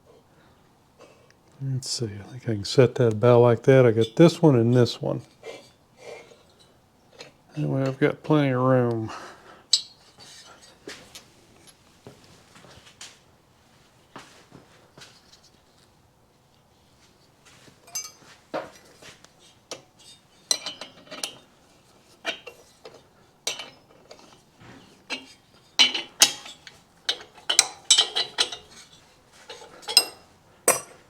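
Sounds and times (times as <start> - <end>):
steel parts and tools clinking: 9.7 - 10.8, 17.8 - 21.5, 22.2 - 31.0.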